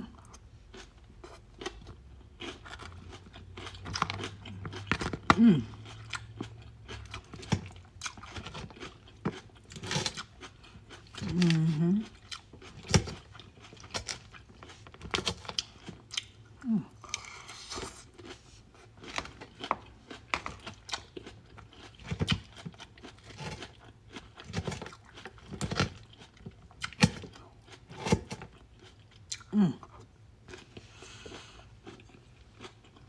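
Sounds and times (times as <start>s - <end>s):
chewing crunchy vegetables: 0.0s - 33.0s.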